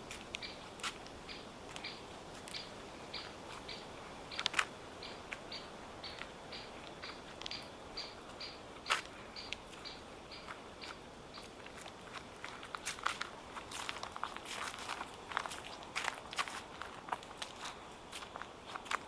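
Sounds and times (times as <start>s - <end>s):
small bird calling: 0.4s - 11.5s
footsteps on dry leaves: 10.5s - 19.0s.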